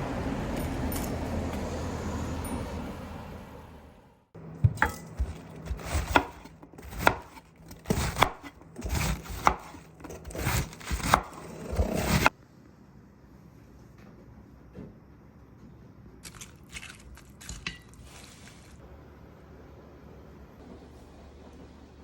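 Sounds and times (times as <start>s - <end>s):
knife chopping on cutting board: 4.6s - 12.3s.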